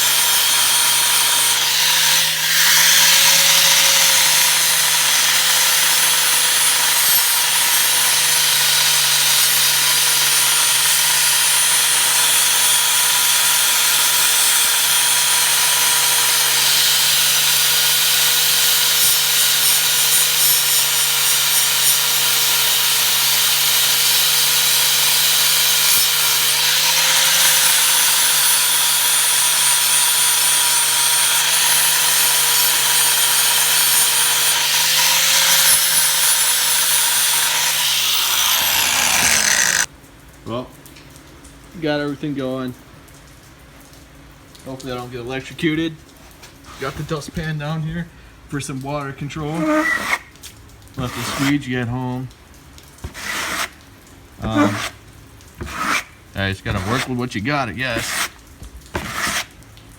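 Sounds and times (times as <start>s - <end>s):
angle grinder on steel: 0.0s - 39.9s, 49.3s - 50.3s, 51.0s - 51.7s, 53.1s - 53.7s, 54.4s - 55.0s, 55.6s - 58.3s.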